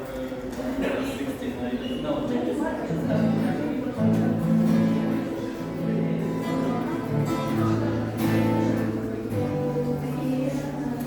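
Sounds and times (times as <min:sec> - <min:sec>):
strummed guitar music: 0:02.9 - 0:11.0.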